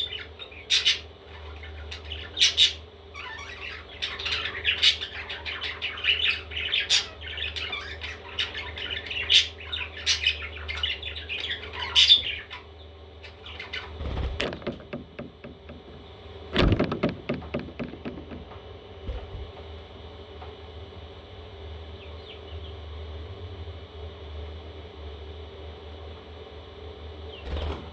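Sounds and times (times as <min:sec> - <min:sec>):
baby parrots squawking: 0:00.1 - 0:14.0.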